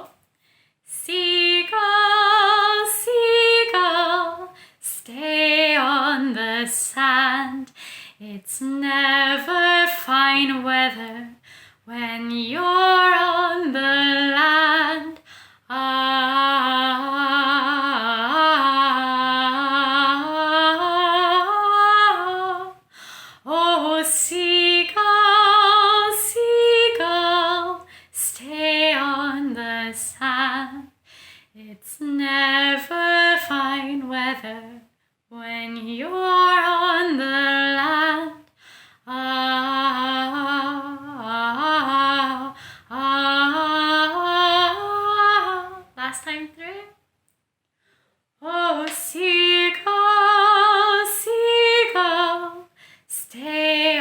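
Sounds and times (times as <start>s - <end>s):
singer breathing: 7.7s - 8.2s, 11.4s - 11.8s, 15.2s - 15.6s, 22.9s - 23.4s, 31.0s - 31.5s, 38.6s - 39.0s.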